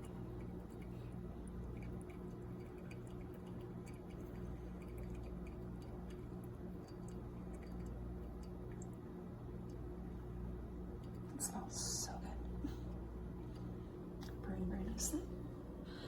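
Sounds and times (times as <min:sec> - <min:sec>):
coffee dripping ticks: 0:00.0 - 0:09.0
faint low hum: 0:00.0 - 0:16.0.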